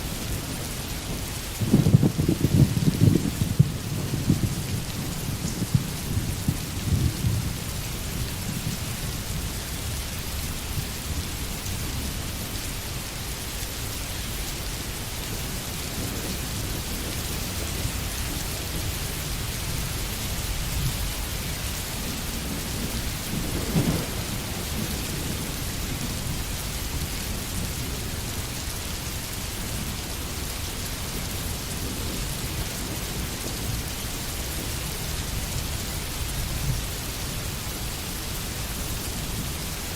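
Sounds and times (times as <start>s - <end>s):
steady rain falling: 0.0s - 39.9s
distant thunder rumbles: 1.0s - 7.7s, 22.0s - 26.4s.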